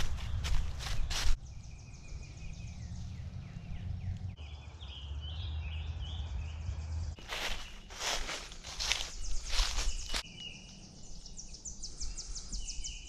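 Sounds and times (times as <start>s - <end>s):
footsteps crunching on dry leaves: 0.0s - 1.4s, 7.2s - 10.4s
birds singing: 0.0s - 13.0s.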